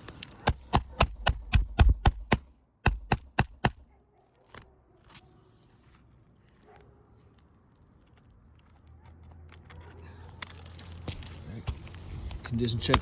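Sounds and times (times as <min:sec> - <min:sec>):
hammer striking with metallic ring: 0:00.5 - 0:03.8.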